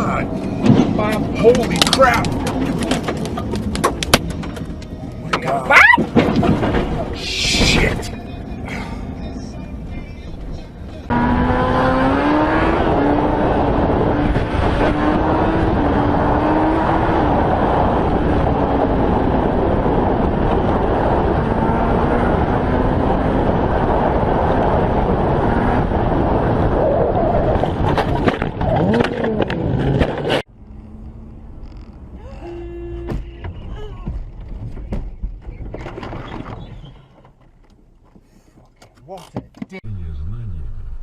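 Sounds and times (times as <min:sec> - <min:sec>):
car engine at speed: 0:00.0 - 0:35.0
road and wind noise: 0:00.0 - 0:41.0
sharp knocks and clicks: 0:00.6 - 0:06.9.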